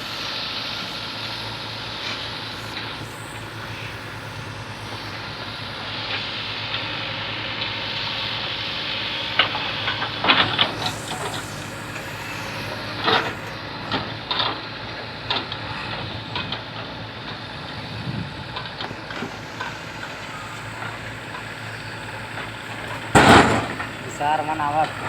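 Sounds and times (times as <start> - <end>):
backhoe engine running: 0.0 - 25.0
sharp knocks and clanks: 23.1 - 24.0.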